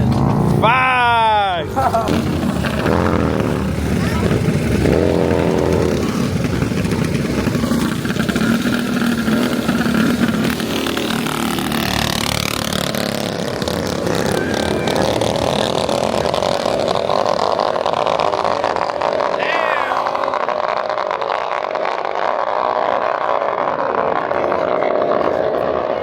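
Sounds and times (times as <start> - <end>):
mini bike engines revving: 0.0 - 26.0.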